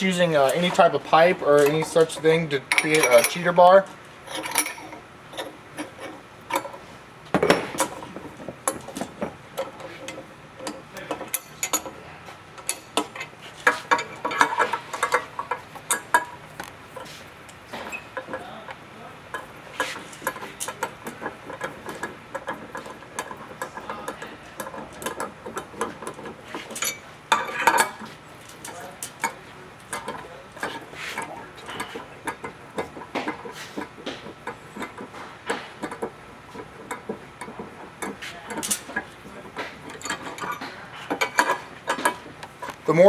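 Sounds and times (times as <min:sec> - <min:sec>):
metal clatter: 0:00.0 - 0:12.0, 0:19.3 - 0:43.0
metal tools clicking and clinking: 0:00.0 - 0:12.0, 0:12.6 - 0:43.0.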